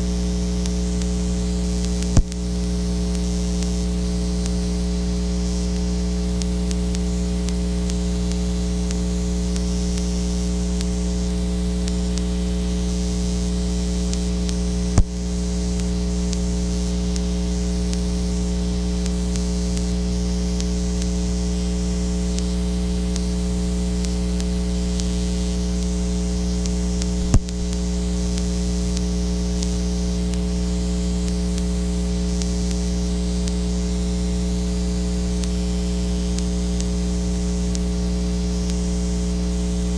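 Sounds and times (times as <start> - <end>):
electrical mains hum: 0.0 - 39.9
sharp clicks: 1.8 - 2.4, 26.6 - 27.8.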